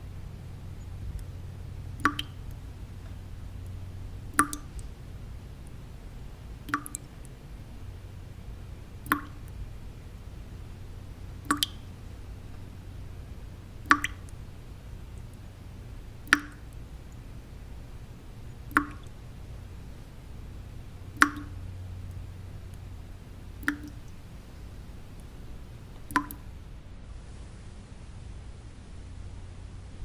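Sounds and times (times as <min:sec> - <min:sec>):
low white noise: 0:00.0 - 0:30.0
water drops plopping: 0:00.7 - 0:04.9, 0:06.6 - 0:07.4, 0:09.0 - 0:09.7, 0:11.4 - 0:13.2, 0:13.8 - 0:14.5, 0:16.1 - 0:20.4, 0:21.0 - 0:22.9, 0:23.5 - 0:26.6.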